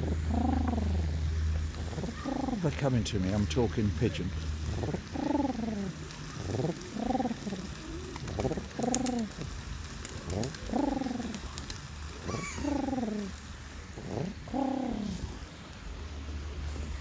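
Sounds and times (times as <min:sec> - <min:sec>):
man imitating pigeon coos: 0:00.0 - 0:02.9, 0:04.7 - 0:09.4, 0:10.1 - 0:11.6, 0:12.2 - 0:13.4.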